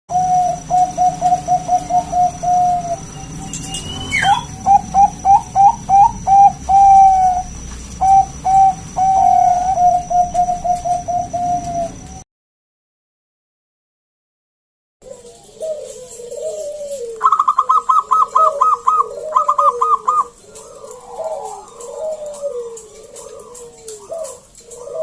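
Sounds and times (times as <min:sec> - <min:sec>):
dove cooing: 0:00.1 - 0:12.2, 0:15.0 - 0:25.0
falling whistle: 0:03.4 - 0:04.6.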